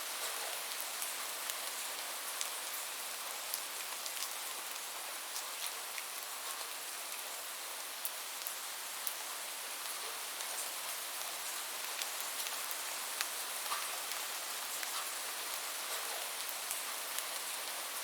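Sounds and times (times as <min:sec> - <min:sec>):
steady rain hissing: 0:00.0 - 0:18.0.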